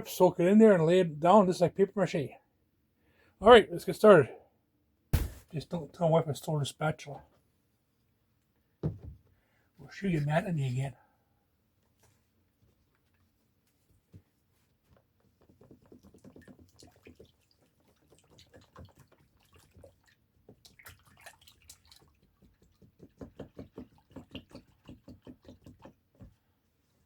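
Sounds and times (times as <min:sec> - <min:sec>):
spatula stirring wet compound: 0:14.3 - 0:27.0.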